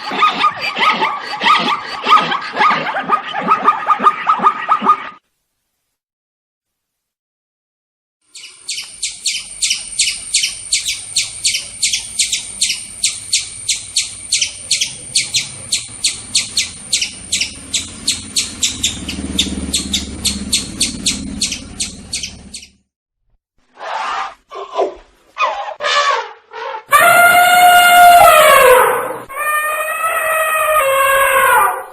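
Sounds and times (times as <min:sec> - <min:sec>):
bird chirping rapidly: 0:08.3 - 0:22.8.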